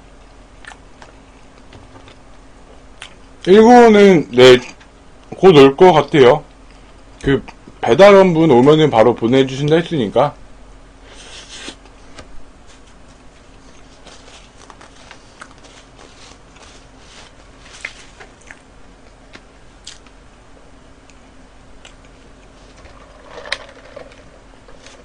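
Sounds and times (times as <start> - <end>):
low steady hum: 0.0 - 25.0
chewing and mouth sounds: 0.6 - 3.3, 15.3 - 16.1, 17.8 - 20.1.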